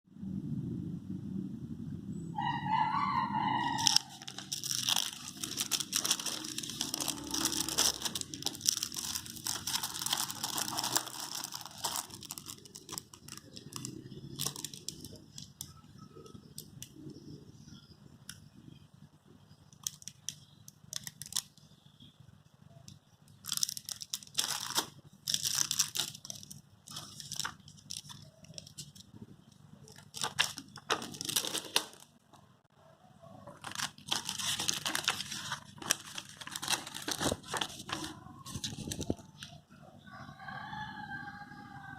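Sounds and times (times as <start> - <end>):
packaging crinkling and tearing: 3.6 - 16.9, 19.7 - 21.7, 23.4 - 29.1, 29.8 - 32.1, 33.5 - 39.5.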